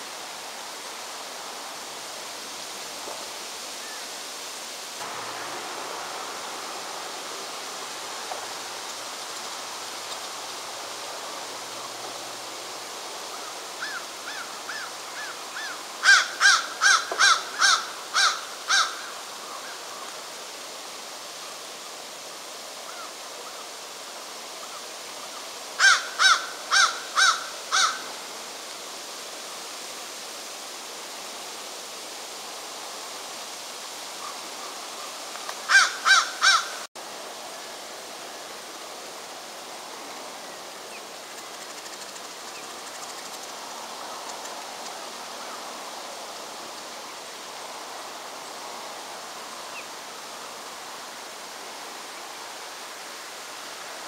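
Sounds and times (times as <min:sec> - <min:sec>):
steady rushing hiss: 0:00.0 - 0:54.0
bird calling harshly: 0:13.8 - 0:19.8, 0:25.8 - 0:28.1, 0:35.7 - 0:36.9.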